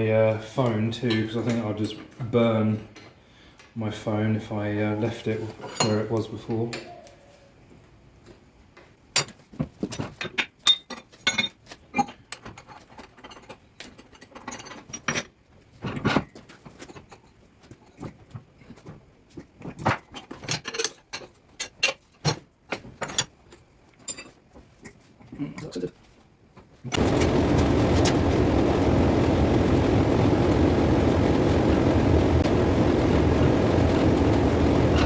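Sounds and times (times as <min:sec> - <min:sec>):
metal clanks and clinks: 0:05.6 - 0:06.1, 0:09.1 - 0:17.4, 0:24.0 - 0:24.4.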